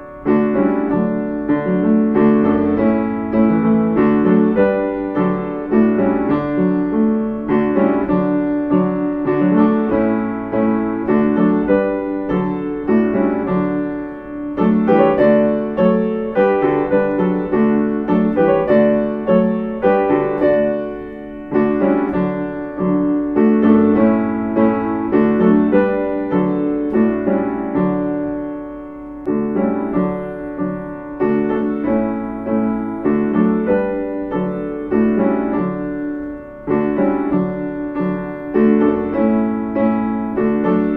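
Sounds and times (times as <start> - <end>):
calm piano music: 0.0 - 40.9.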